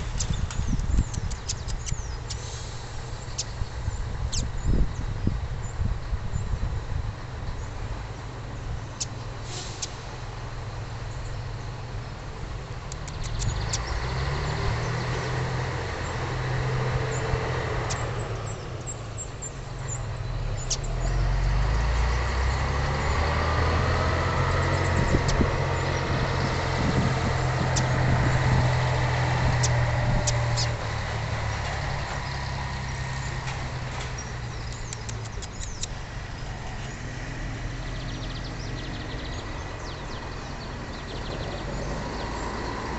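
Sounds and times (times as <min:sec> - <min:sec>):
low engine-like rumble: 0:00.0 - 0:42.9.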